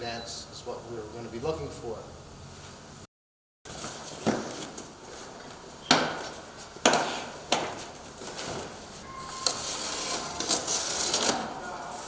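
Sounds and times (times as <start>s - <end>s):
cardboard scraping and rustling: 8.1s - 12.0s.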